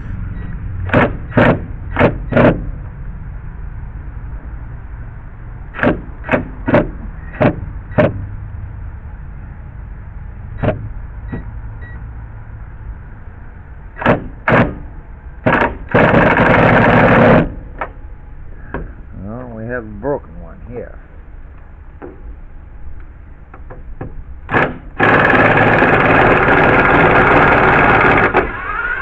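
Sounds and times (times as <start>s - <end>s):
sharp knocks and clicks: 5.8s - 8.3s, 10.6s - 11.5s, 23.5s - 24.9s
power screw gun whirring: 24.5s - 29.0s.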